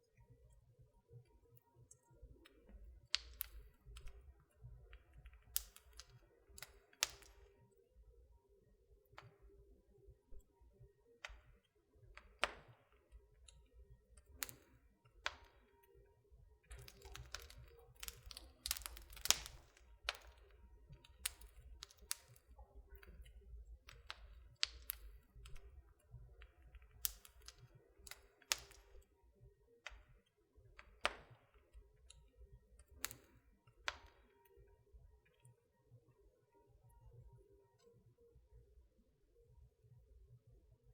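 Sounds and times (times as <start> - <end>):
wood fire crackling and popping: 2.2 - 7.8, 11.2 - 15.8, 16.6 - 29.1, 30.7 - 34.6.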